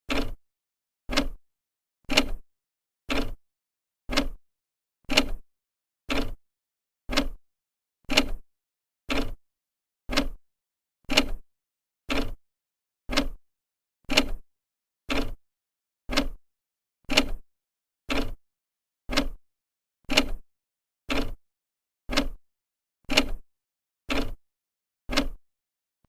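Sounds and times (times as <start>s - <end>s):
clock ticking: 0.1s - 0.4s, 1.1s - 1.4s, 3.1s - 3.4s, 4.1s - 4.4s, 6.1s - 6.4s, 7.1s - 7.4s, 9.1s - 9.4s, 10.1s - 10.4s, 12.1s - 12.4s, 13.1s - 13.4s, 15.1s - 15.4s, 16.1s - 16.4s, 18.1s - 18.4s, 19.1s - 19.4s, 21.1s - 21.4s, 22.1s - 22.4s, 23.1s - 23.4s, 24.1s - 24.4s, 25.1s - 25.4s.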